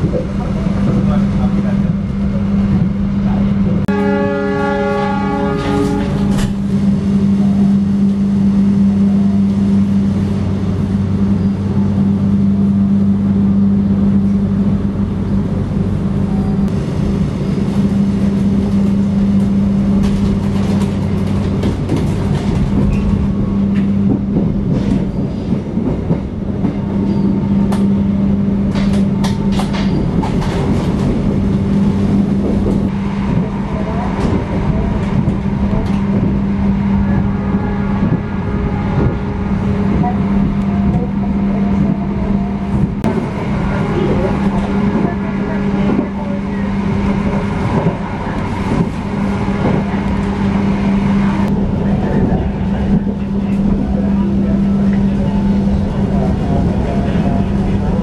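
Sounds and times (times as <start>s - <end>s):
train rumbling drone: 0.0s - 58.0s.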